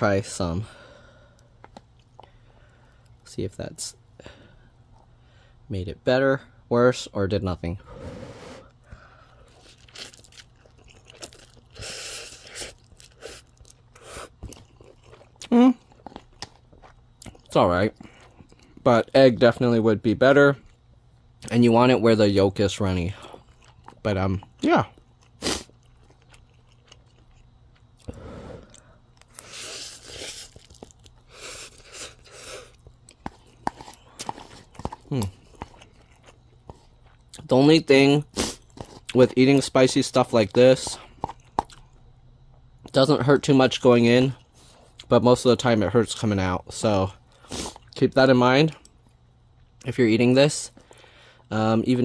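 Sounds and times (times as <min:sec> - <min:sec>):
breathy noise: 0:07.8 - 0:09.6, 0:28.0 - 0:30.4
person chewing noodles: 0:08.0 - 0:18.8, 0:23.2 - 0:37.5, 0:38.2 - 0:39.2, 0:40.4 - 0:42.8, 0:47.3 - 0:48.0
chewing and wet mouth clicks: 0:14.4 - 0:17.5, 0:25.0 - 0:28.1, 0:41.2 - 0:41.9.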